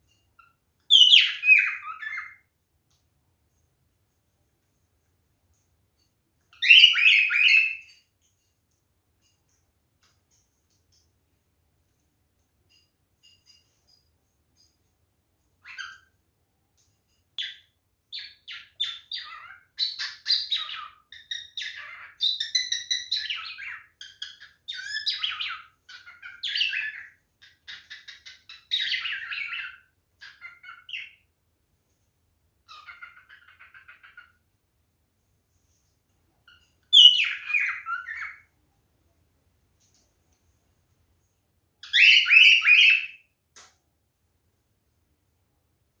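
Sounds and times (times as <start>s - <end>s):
cockatiel chirping and whistling: 0.4s - 2.4s, 6.5s - 8.0s, 15.6s - 16.1s, 18.2s - 31.2s, 32.7s - 34.3s, 36.5s - 38.5s, 41.8s - 43.2s.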